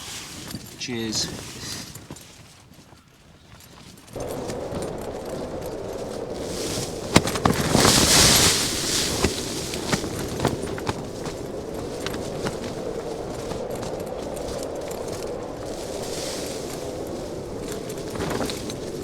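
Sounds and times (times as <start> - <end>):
tent fabric flapping in wind: 0.0 - 19.0
strong wind gust hissing: 4.2 - 19.0.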